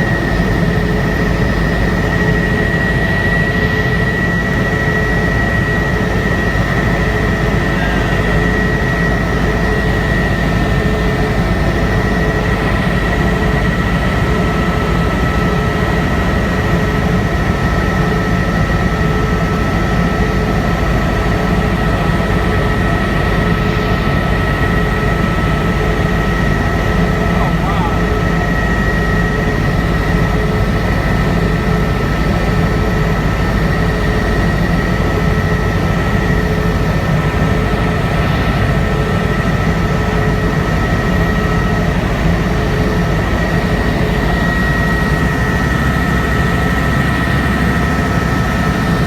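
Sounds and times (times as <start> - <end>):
helicopter engine and rotor drone: 0.0 - 49.0
high-pitched whine: 0.0 - 49.0.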